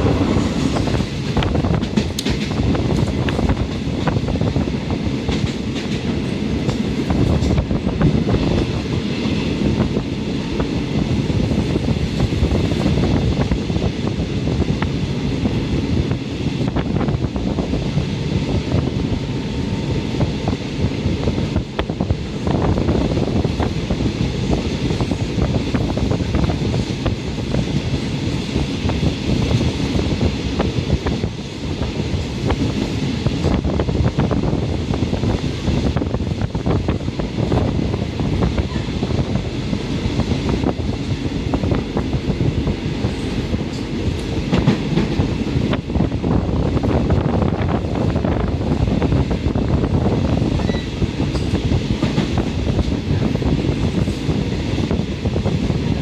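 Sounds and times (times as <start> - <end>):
wheels knocking on rail joints: 0.0 - 4.2
train wheels rumbling on rails: 0.0 - 56.0.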